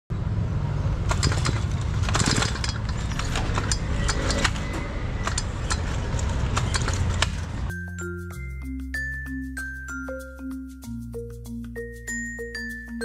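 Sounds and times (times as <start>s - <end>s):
metallic clicks and rattles: 1.0s - 7.7s.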